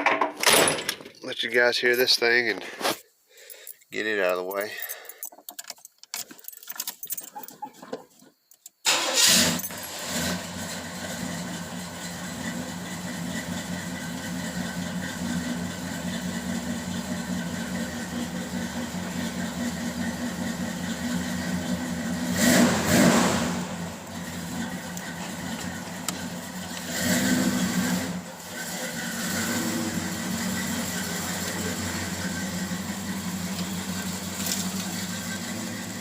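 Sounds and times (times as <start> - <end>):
car engine starting and idling: 8.8 - 36.0.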